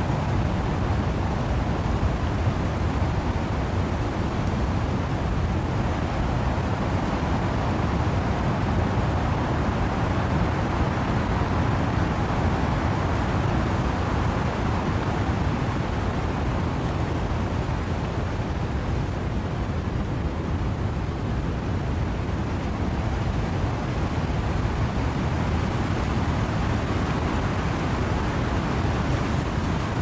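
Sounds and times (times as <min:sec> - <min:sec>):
wind and rain in trees: 0:00.0 - 0:30.0.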